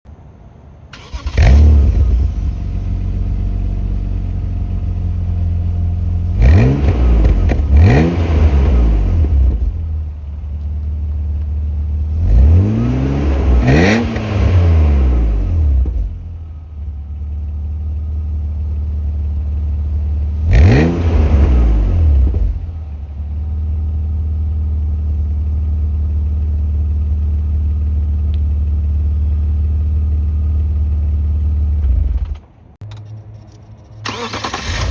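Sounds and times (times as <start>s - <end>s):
car engine starting and revving: 0.9s - 27.0s, 34.0s - 34.9s.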